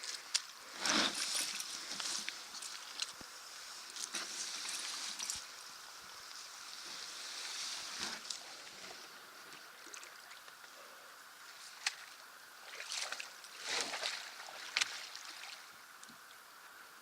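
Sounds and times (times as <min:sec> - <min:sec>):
moving water hiss: 0:00.0 - 0:17.0
canoe paddle strokes in water: 0:11.7 - 0:15.7.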